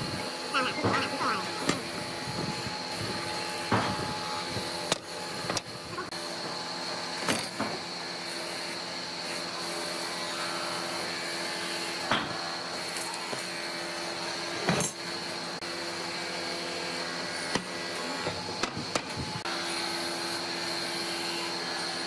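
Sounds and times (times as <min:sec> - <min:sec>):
power tool motor running on wood: 0:00.0 - 0:22.0.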